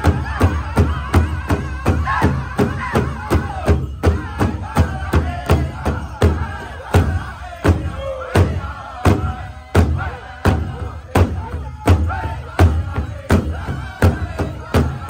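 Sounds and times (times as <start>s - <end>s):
drum beating: 0.0s - 15.0s
group of voices singing: 0.0s - 15.0s.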